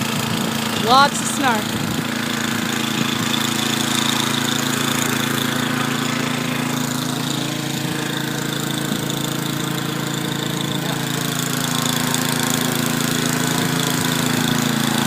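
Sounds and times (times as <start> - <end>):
small gasoline engine running: 0.0 - 15.0.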